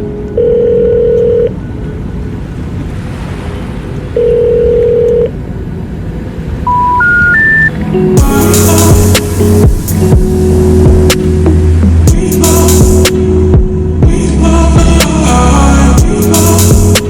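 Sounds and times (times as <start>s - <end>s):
long telephone beeps: 0.4s - 1.5s, 4.2s - 5.3s, 6.7s - 7.7s
steady rushing noise: 1.5s - 4.7s, 5.3s - 15.4s
short beeps climbing in pitch: 6.6s - 7.8s.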